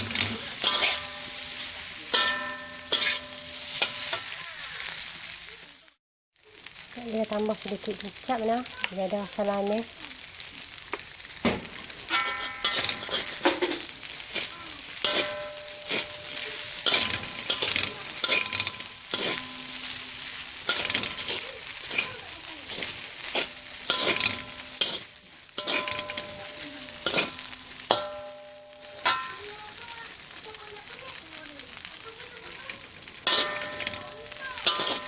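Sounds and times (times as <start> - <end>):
spatula scraping pan: 0.0 - 5.0, 12.1 - 29.9, 32.4 - 35.0
rice sizzling in a hot pan: 0.0 - 35.0.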